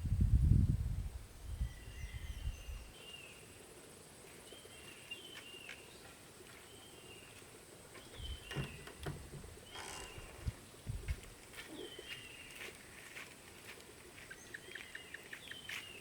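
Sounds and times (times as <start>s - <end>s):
birds chirping: 4.4s - 12.8s, 14.2s - 16.0s.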